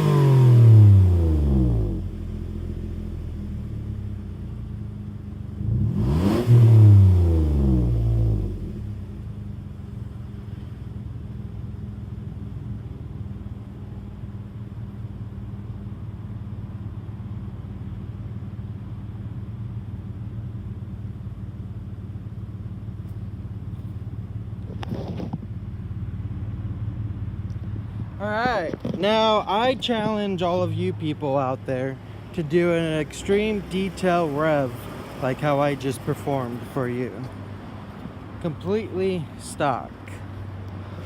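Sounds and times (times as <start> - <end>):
car engine revving and idling: 0.0 - 41.0.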